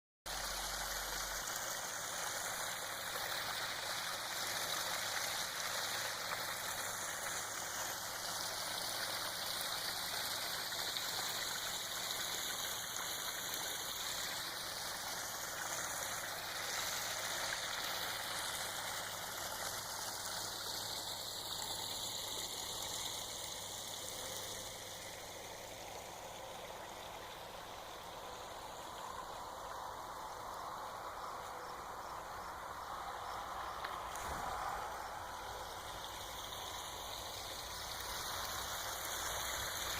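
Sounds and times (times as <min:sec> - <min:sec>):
waterfall splashing: 0:00.3 - 0:20.6.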